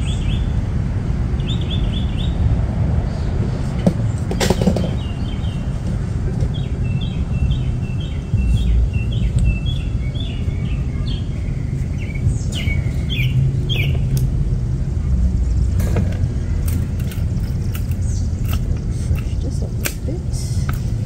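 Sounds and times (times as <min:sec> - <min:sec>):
steady low rumble: 0:00.0 - 0:21.0
songbird chirping: 0:04.5 - 0:14.4
sharp clicks: 0:16.6 - 0:20.0.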